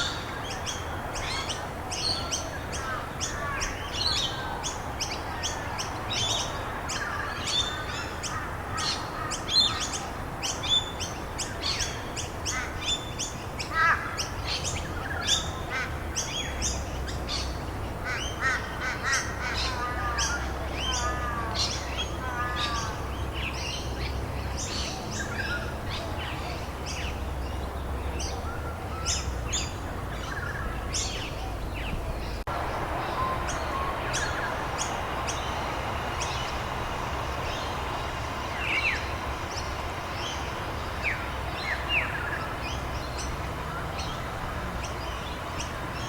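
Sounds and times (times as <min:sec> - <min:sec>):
birds chirping and calling: 0:00.0 - 0:46.0
rain hiss: 0:31.7 - 0:46.0.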